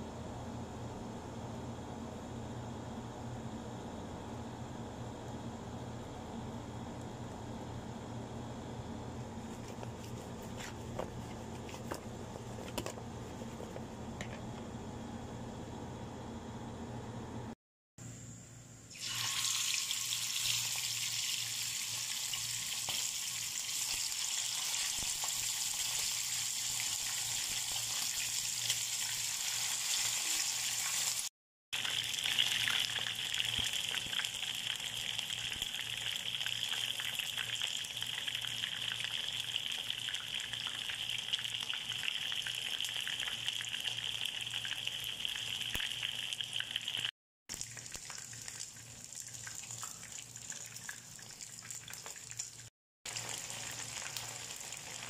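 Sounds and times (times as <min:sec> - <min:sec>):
chicken deep-frying in oil: 0:18.9 - 0:55.0.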